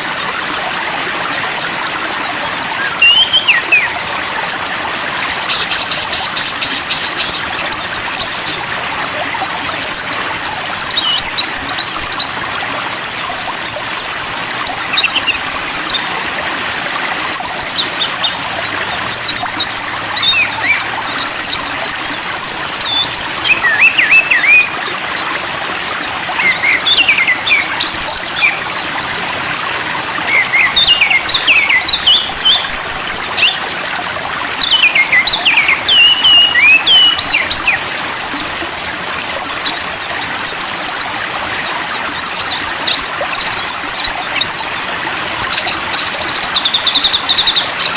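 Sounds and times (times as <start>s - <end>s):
songbirds chirping: 17.0s - 47.9s.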